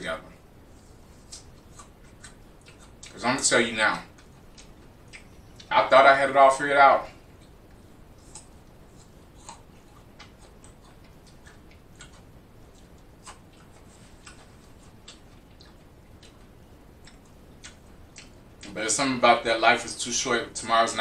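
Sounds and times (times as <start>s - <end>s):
room hiss: 0.0s - 21.0s
man chewing food: 0.5s - 3.4s, 4.0s - 5.8s, 7.0s - 18.8s.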